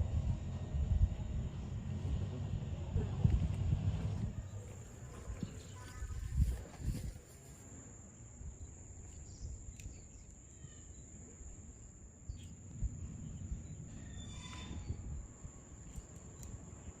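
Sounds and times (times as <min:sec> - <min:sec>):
low rumbling: 0:00.0 - 0:07.1
insects chirring: 0:04.2 - 0:17.0.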